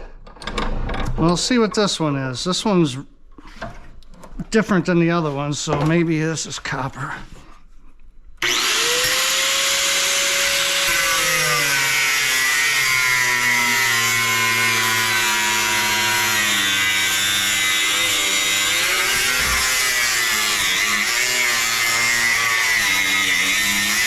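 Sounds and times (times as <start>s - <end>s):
power tool cutting: 8.4s - 24.0s.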